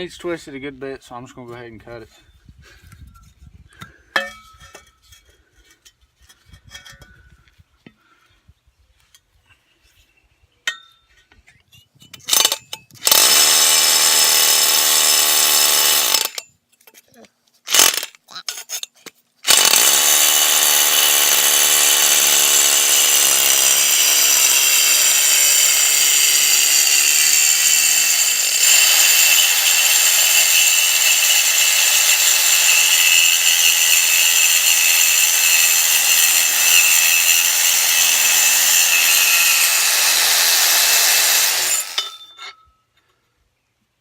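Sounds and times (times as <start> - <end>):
power saw cutting metal pipe: 12.3 - 16.4, 17.7 - 18.9, 19.5 - 42.6.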